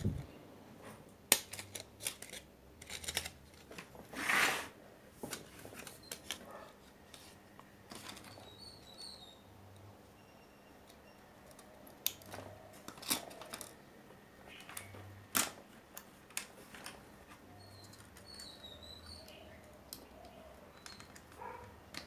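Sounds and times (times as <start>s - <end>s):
small tools clicking and tapping: 1.3s - 3.9s, 10.8s - 13.8s, 14.5s - 22.0s
faint bird chirps: 8.3s - 11.8s, 17.4s - 21.2s.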